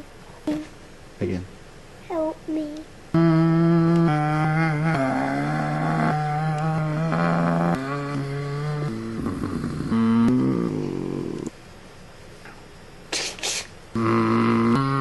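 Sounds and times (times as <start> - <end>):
person imitating truck engine: 3.2 - 11.5, 14.0 - 15.0.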